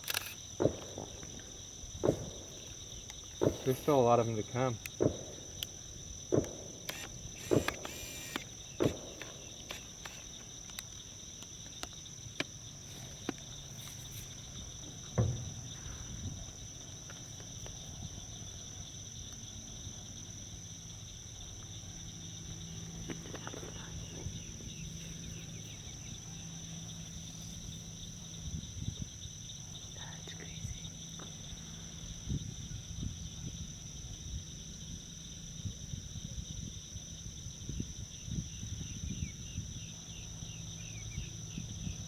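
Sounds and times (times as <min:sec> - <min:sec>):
chorus of marsh insects: 0:00.0 - 0:42.0
sharp knocks and thumps: 0:00.6 - 0:02.7, 0:03.3 - 0:04.1, 0:05.0 - 0:05.4, 0:06.3 - 0:06.8, 0:08.8 - 0:09.8, 0:14.8 - 0:16.0.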